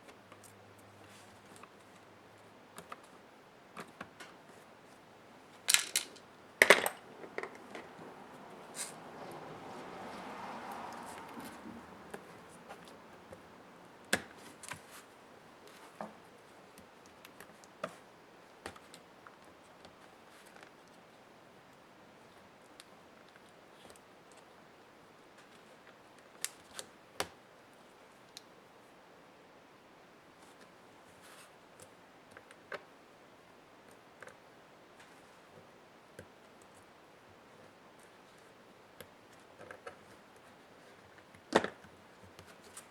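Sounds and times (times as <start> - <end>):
soft rustle: 0.0 - 6.3, 6.9 - 18.1, 30.2 - 31.9, 36.4 - 42.9
laptop parts and tools clicking: 5.7 - 8.0.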